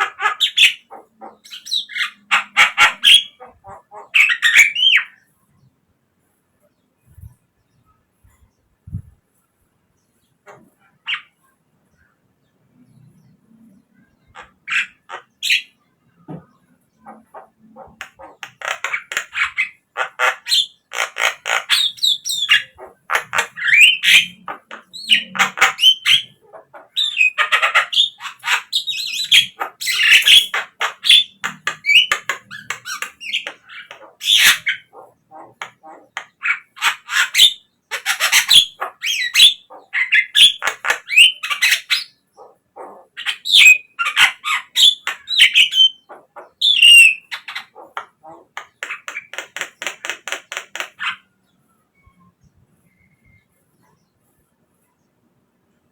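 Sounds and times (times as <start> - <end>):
bird squawking and whistling: 27.0 - 48.4.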